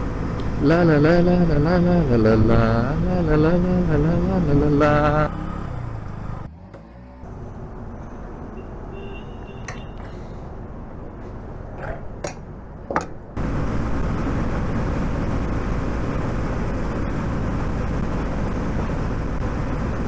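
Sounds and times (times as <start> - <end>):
motorcycle engine at speed: 0.0 - 8.0, 13.4 - 20.0.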